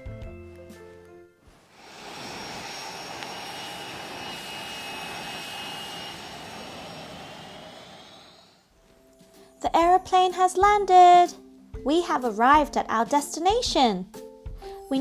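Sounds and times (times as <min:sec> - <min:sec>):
jet engines running: 0:01.6 - 0:08.7.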